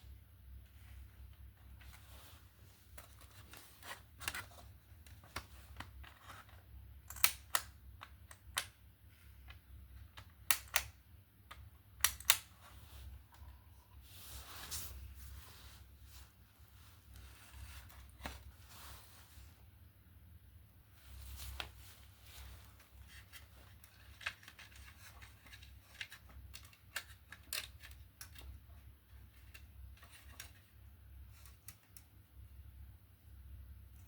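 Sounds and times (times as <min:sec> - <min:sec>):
low steady hum: 0:00.0 - 0:34.0
short rustle: 0:14.0 - 0:19.6.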